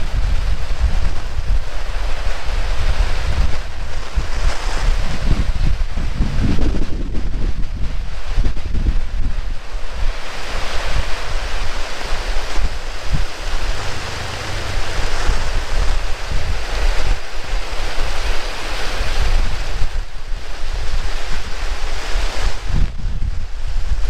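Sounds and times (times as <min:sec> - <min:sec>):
wind buffeting microphone: 0:00.0 - 0:24.0
heavy rain hissing: 0:07.5 - 0:24.0.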